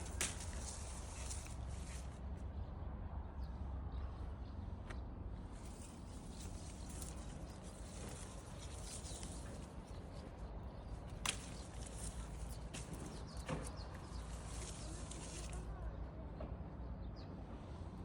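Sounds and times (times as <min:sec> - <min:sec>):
rustling and handling noise: 0:00.0 - 0:02.4, 0:05.5 - 0:15.8.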